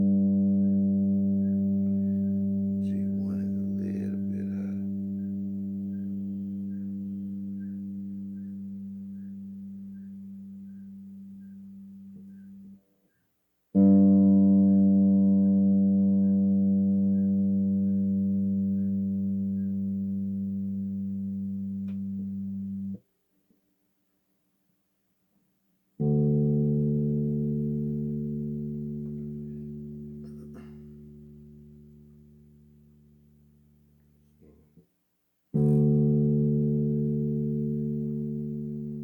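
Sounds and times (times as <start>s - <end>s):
bass guitar low note ringing: 0.0s - 12.8s, 13.8s - 23.0s, 26.0s - 34.6s, 35.6s - 39.0s.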